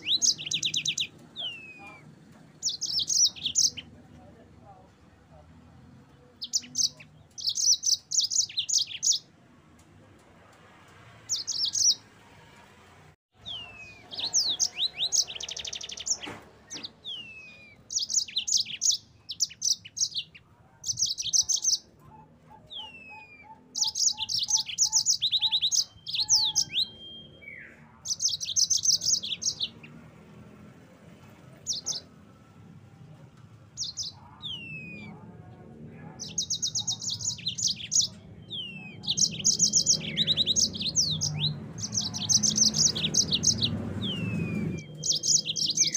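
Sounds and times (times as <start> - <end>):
canary singing: 0.0 - 4.0, 5.8 - 9.4, 11.2 - 12.2, 13.4 - 32.8, 33.4 - 45.9.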